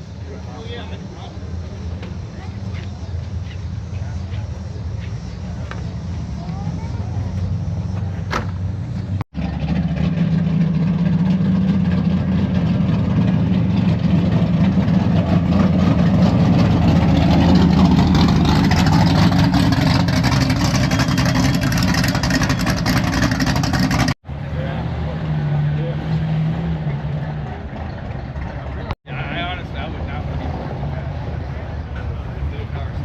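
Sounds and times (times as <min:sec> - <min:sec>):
car engine running: 0:00.0 - 0:24.7.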